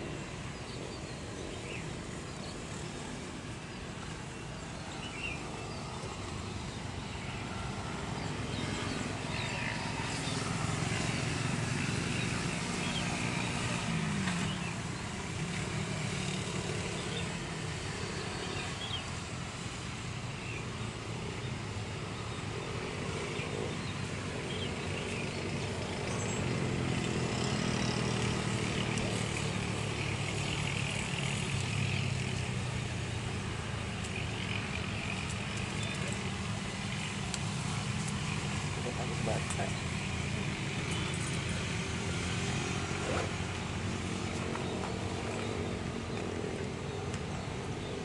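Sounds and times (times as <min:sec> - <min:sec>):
engine humming: 0:00.0 - 0:48.0.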